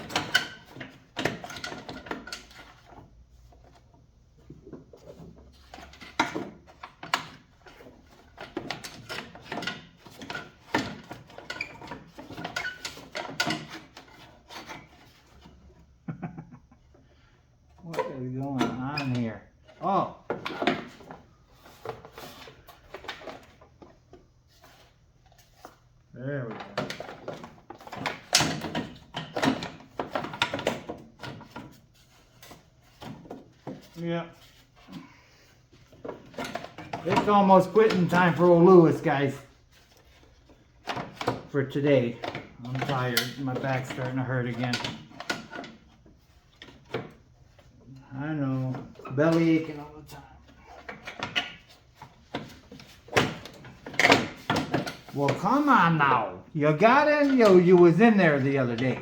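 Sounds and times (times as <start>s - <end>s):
metal parts clanking and scraping: 0.0s - 3.0s, 5.0s - 15.6s
knocks and clanks of parts: 0.0s - 15.6s, 17.8s - 24.2s, 26.5s - 35.1s, 35.7s - 47.7s, 50.4s - 55.8s.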